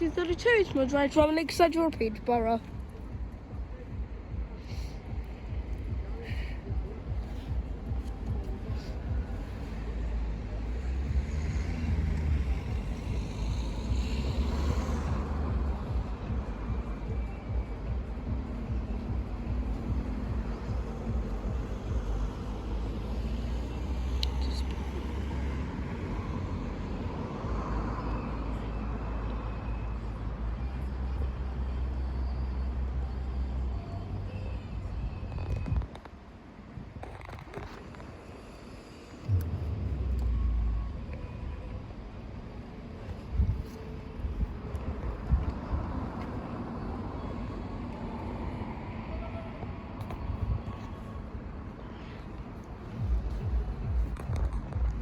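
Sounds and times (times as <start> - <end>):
road traffic rumble: 0.0 - 55.0
wind buffeting microphone: 43.2 - 47.1.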